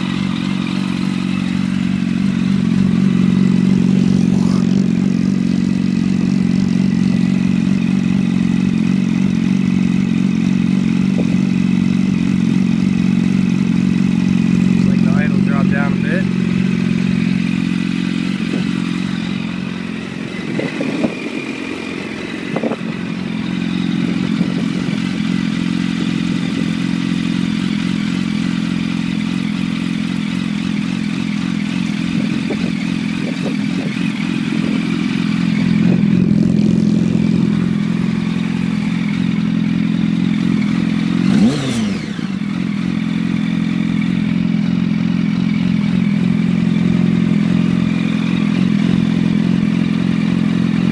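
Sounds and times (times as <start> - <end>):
motorcycle engine idling: 0.0 - 50.9.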